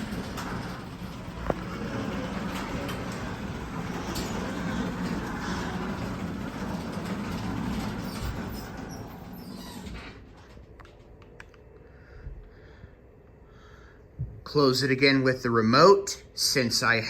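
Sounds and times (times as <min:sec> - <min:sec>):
garage door motor humming: 0:00.0 - 0:11.4.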